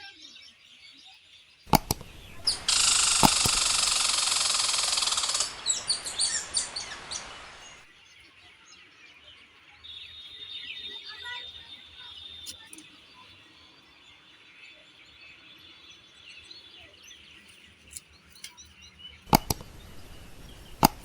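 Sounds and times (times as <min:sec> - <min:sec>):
birds chirping: 0:00.3 - 0:08.3, 0:09.1 - 0:21.0
sharp clicks: 0:01.7 - 0:07.9, 0:19.3 - 0:21.0.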